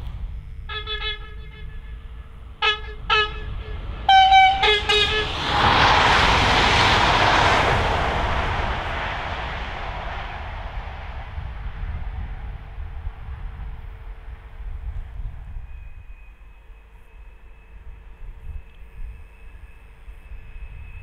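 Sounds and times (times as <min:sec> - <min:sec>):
train passing at speed: 0:00.0 - 0:21.0
train two-tone horn blasts: 0:00.3 - 0:05.5.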